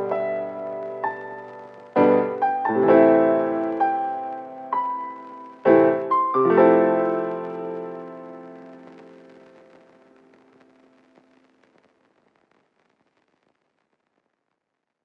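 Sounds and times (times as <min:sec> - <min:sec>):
slow gentle piano music: 0:00.0 - 0:11.6.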